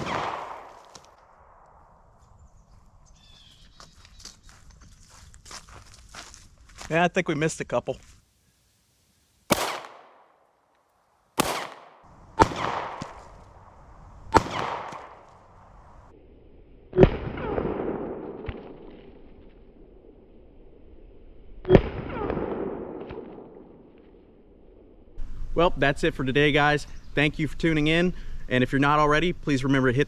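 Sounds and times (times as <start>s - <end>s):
pistol shots echoing: 0.0s - 1.7s, 9.5s - 10.4s, 11.4s - 13.4s, 14.3s - 15.3s.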